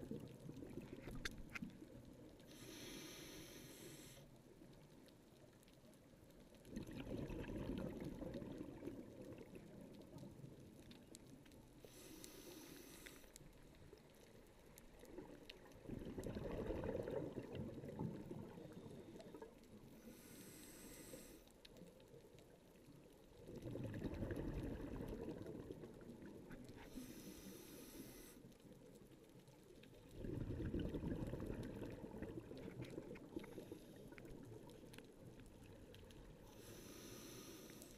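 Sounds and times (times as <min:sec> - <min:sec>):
exhaled air bubbling underwater: 0:00.0 - 0:04.6, 0:06.5 - 0:21.4, 0:22.2 - 0:37.8
regulator inhale hiss: 0:02.4 - 0:04.4, 0:11.8 - 0:13.4, 0:18.6 - 0:21.6, 0:26.8 - 0:28.5, 0:36.4 - 0:37.9.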